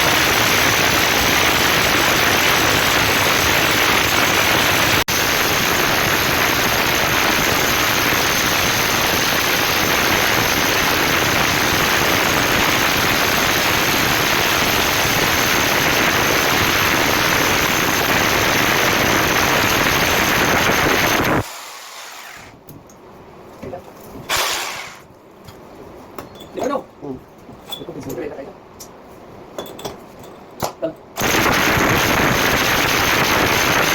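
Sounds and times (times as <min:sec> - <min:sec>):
electric drill cutting masonry: 0:00.0 - 0:22.6, 0:24.3 - 0:25.1, 0:31.2 - 0:33.9.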